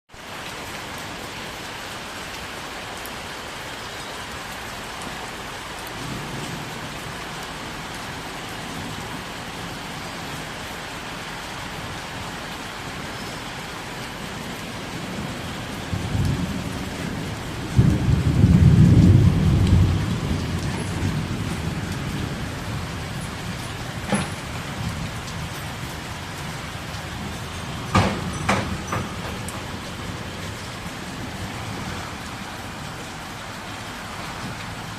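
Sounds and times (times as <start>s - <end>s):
rain falling: 0.1s - 34.9s
sharp knocks: 27.9s - 29.7s.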